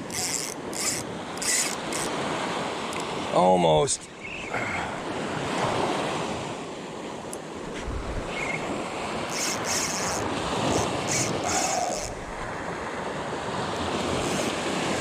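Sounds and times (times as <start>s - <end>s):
surf washing on beach: 2.1s - 15.0s
wind buffeting microphone: 7.6s - 15.0s.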